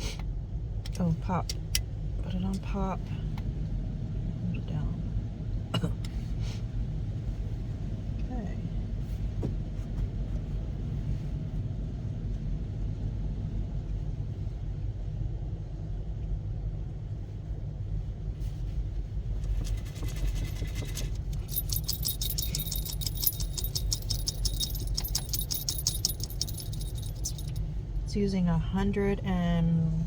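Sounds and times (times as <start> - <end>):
rapid light clicking and rattling: 19.4 - 27.7.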